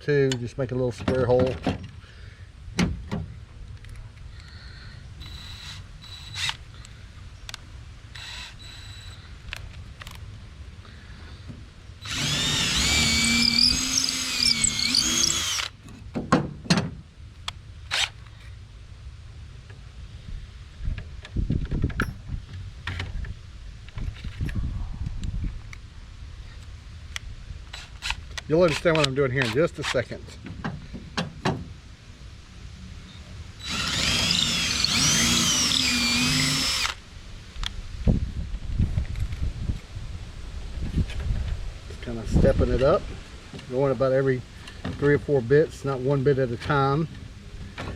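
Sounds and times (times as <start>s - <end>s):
power drill boring into wood: 5.2s - 6.6s, 8.2s - 9.2s, 12.0s - 15.7s, 33.6s - 37.0s.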